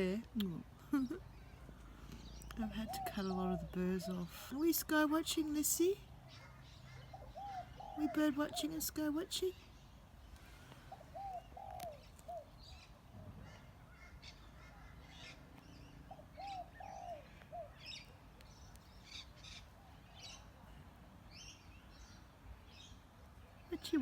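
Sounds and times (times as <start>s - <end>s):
small birds chirping: 0.0s - 24.0s
dove cooing: 2.6s - 4.4s, 6.4s - 9.3s, 10.8s - 15.4s, 16.0s - 18.0s.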